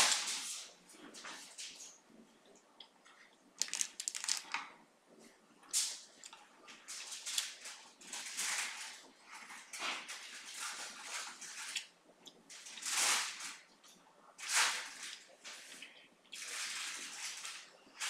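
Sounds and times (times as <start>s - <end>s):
close chewing with wet mouth sounds: 11.7s - 12.7s, 15.1s - 16.5s.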